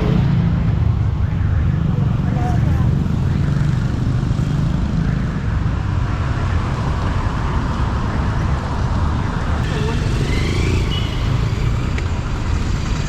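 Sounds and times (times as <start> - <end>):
traffic road rumble: 0.0 - 13.0.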